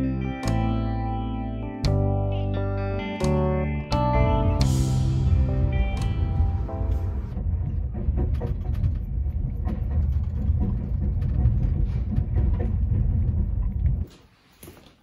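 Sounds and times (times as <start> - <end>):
faint clicks and rattles: 7.3 - 15.0.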